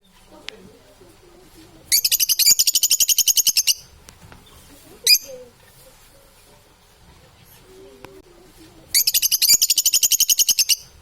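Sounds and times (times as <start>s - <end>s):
parrot chirping: 1.9s - 3.9s, 5.0s - 5.5s, 8.9s - 11.0s.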